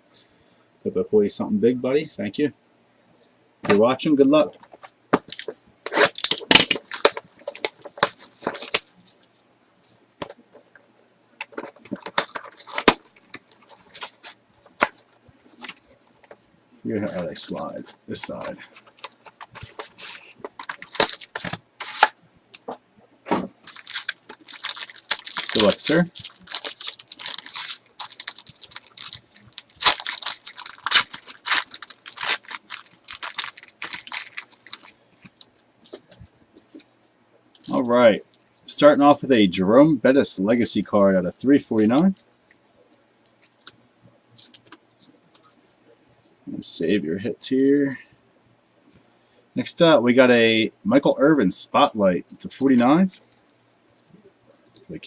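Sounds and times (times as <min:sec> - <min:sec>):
plastic wrap and cardboard crackling: 0:04.6 - 0:09.4, 0:11.4 - 0:16.4, 0:17.0 - 0:22.2, 0:23.5 - 0:36.9.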